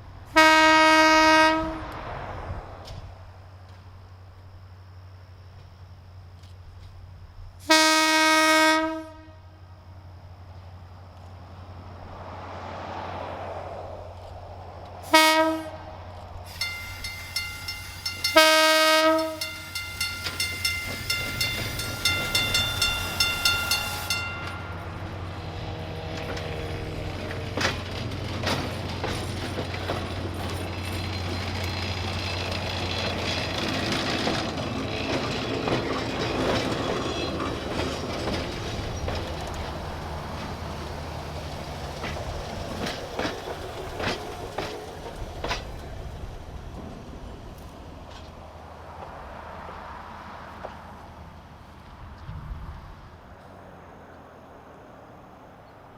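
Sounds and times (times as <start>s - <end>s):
train horn blasts: 0.3s - 2.0s, 7.6s - 9.6s, 15.0s - 27.0s
train wheels clacking over rails: 16.4s - 49.9s
bell ringing rapidly: 16.5s - 25.0s.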